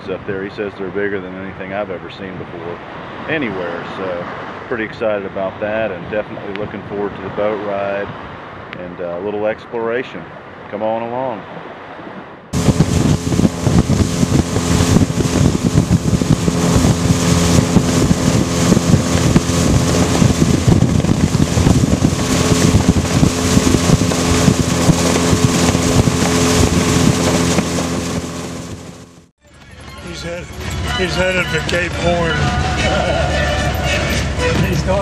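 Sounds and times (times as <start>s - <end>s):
rushing water: 10.2s - 29.3s
wind buffeting microphone: 11.4s - 29.2s
motorboat engine drone: 12.3s - 29.3s, 30.2s - 35.0s.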